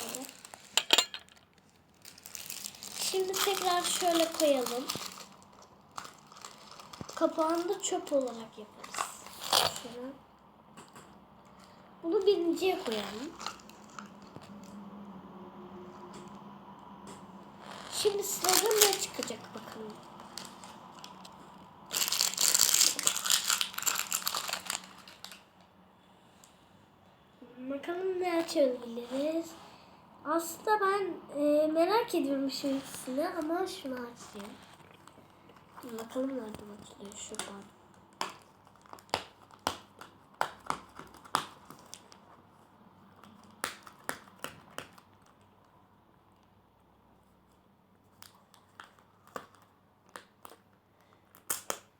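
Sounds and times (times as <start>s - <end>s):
plastic packaging crinkling: 0.0s - 10.1s, 11.5s - 14.7s, 17.6s - 25.7s, 32.5s - 42.3s, 48.1s - 51.9s
plastic package clicks and snaps: 22.0s - 25.4s, 37.3s - 42.2s, 48.2s - 51.9s.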